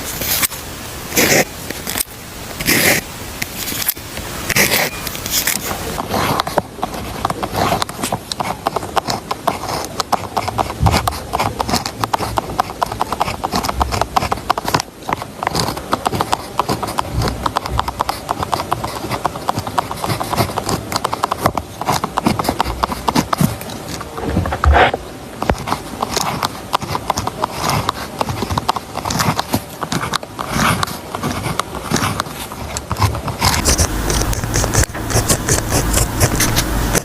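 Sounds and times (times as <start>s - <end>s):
rapid clicking and tapping: 1.2s - 24.1s, 25.4s - 37.0s.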